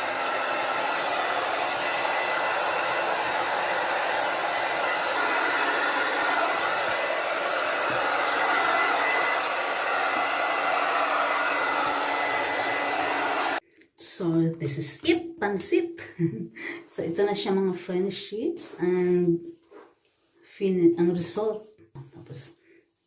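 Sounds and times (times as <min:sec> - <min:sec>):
hair dryer blowing: 0:00.0 - 0:13.6.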